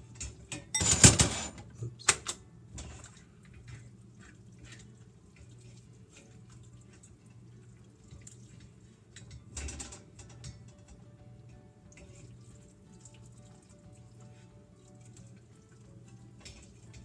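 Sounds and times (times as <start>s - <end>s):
water drips and splashes: 2.7s - 11.0s, 11.8s - 17.0s.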